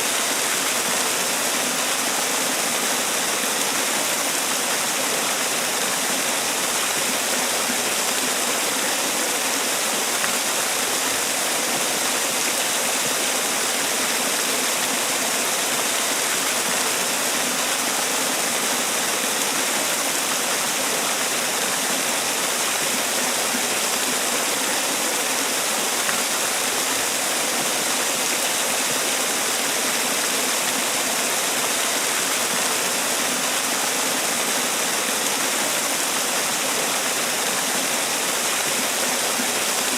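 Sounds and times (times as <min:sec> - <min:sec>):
waterfall pouring and splashing: 0:00.0 - 0:39.9.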